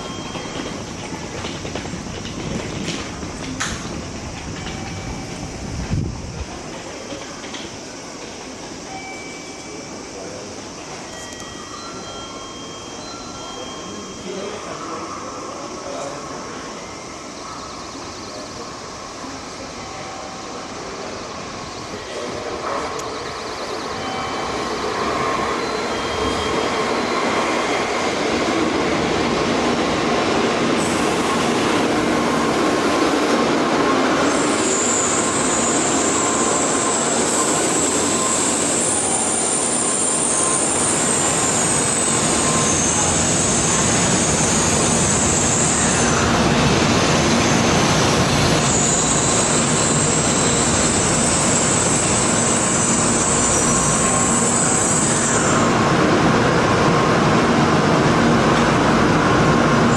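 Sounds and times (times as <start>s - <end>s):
train running noise: 0.0s - 59.9s
high-pitched squeal: 30.6s - 56.0s.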